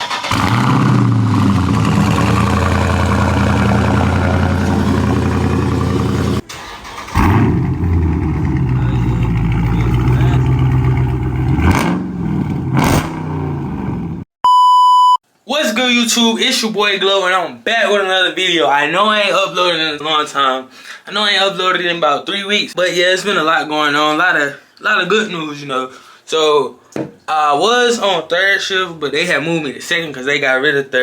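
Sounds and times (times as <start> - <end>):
engine blips: 0.0 - 12.6
loud car engine running: 0.2 - 6.5, 7.2 - 14.2.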